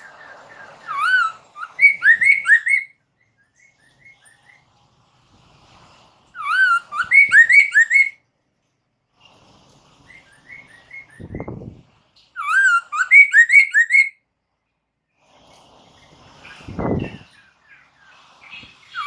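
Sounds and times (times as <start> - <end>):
bird whistling song: 0.0 - 2.9, 6.4 - 8.2, 12.4 - 14.1, 18.6 - 19.0.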